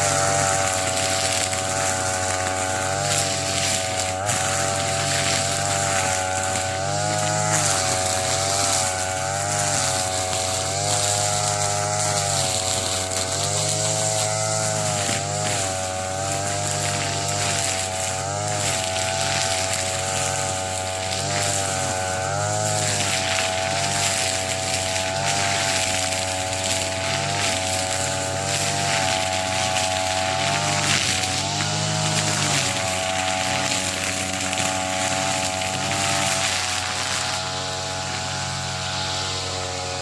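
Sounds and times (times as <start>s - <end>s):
brush cutter cutting grass: 0.0s - 40.0s.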